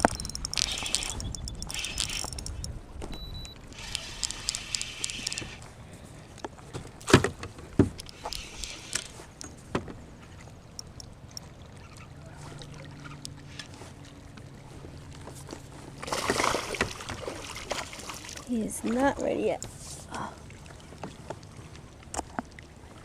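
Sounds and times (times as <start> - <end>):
knocks and clicks on kayak hull: 6.7 - 10.0.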